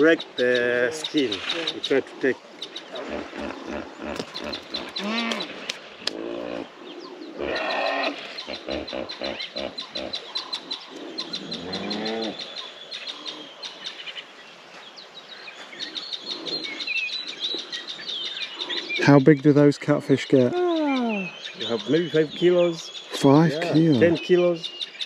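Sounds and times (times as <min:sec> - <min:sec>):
birds chirping: 0:00.0 - 0:25.0
hippopotamus grunting and honking: 0:00.4 - 0:12.7.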